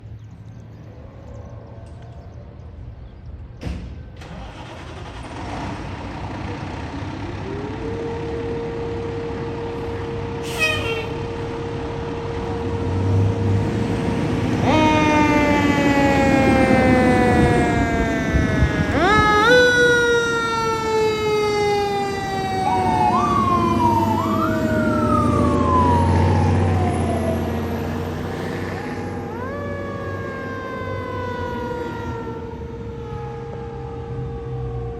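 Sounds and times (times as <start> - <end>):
fire truck engine: 1.4 - 34.9
electronic siren wail: 7.4 - 34.9
siren tone: 7.4 - 34.9
horn blast: 10.4 - 11.6.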